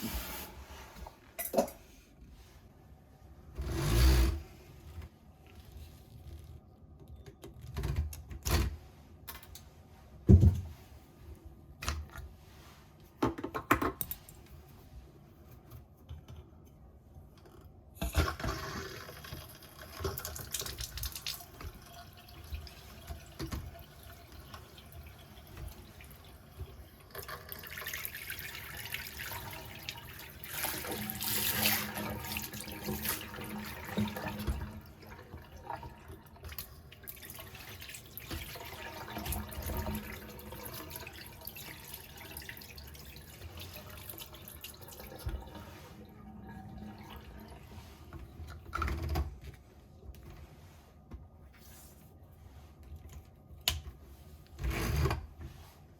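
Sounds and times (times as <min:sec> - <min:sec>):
faucet water running into basin: 0:18.2 - 0:47.9.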